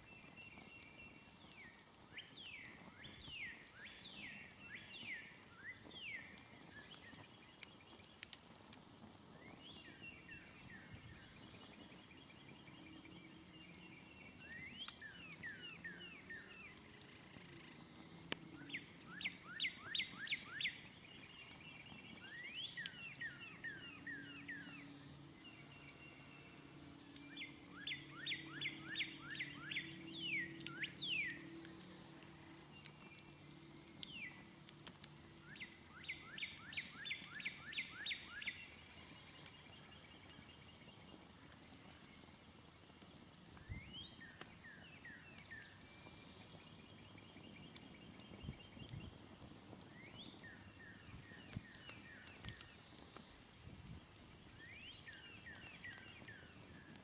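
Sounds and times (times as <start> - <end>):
campfire crackling: 0.0 - 57.0
songbird trilling: 27.3 - 31.4.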